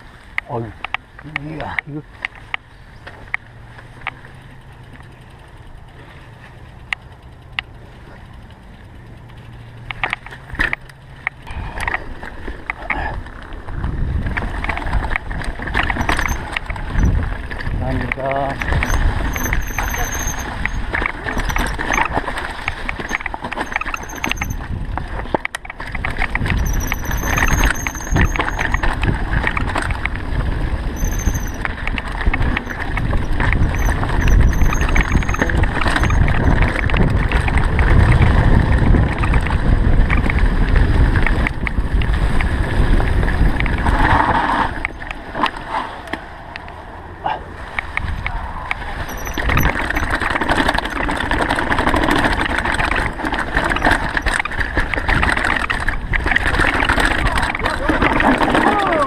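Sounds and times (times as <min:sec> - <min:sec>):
bike tyres rumbling: 0:00.0 - 0:59.0
wind on microphone: 0:13.7 - 0:22.1, 0:26.0 - 0:44.8
brakes squealing: 0:14.4 - 0:25.2, 0:26.0 - 0:41.4, 0:42.1 - 0:59.0.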